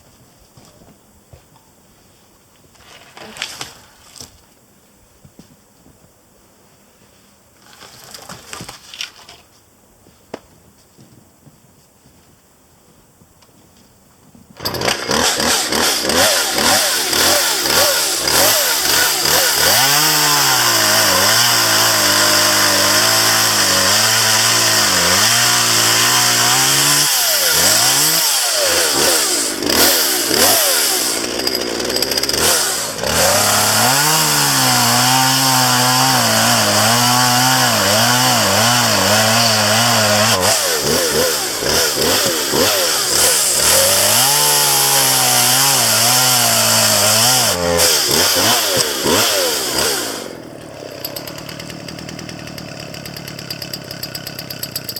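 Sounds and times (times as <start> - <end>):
chainsaw revving and cutting wood: 14.6 - 54.9.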